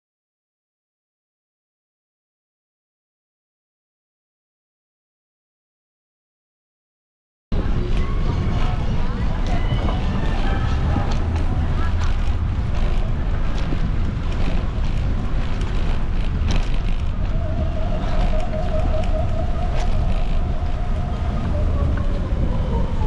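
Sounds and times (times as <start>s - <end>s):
wind rushing over microphone: 7.5s - 23.0s.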